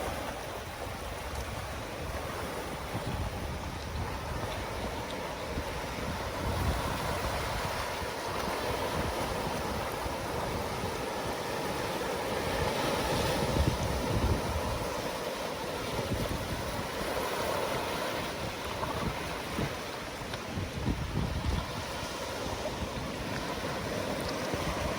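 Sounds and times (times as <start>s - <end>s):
ocean surf washing: 0.0s - 24.9s
wind rumbling on microphone: 0.0s - 24.9s.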